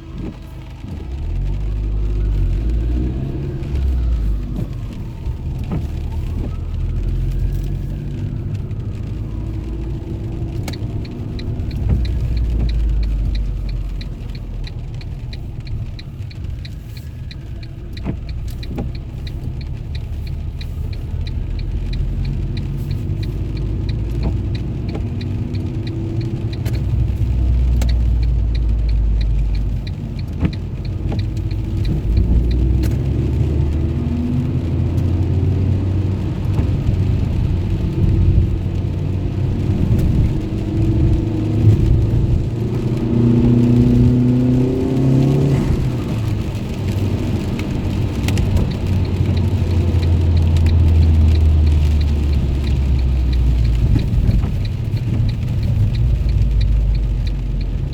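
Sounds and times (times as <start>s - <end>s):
car engine and road rumble: 0.0s - 57.9s
fast regular ticking: 8.7s - 33.8s, 46.0s - 57.9s.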